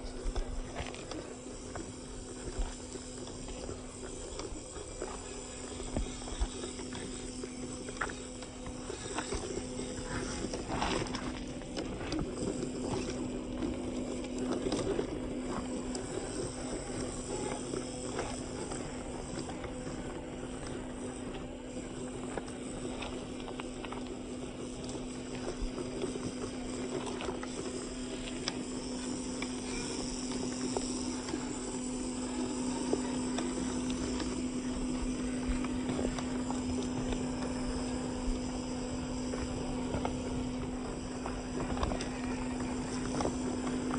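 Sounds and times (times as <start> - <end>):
toy car running over rocky ground: 0.0 - 43.9.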